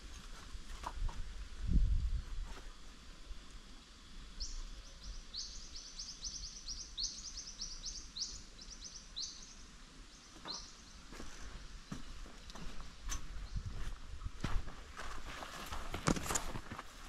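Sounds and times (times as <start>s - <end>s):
small bird chirping: 4.3s - 14.0s
footsteps on gravel and leaves: 10.4s - 17.0s.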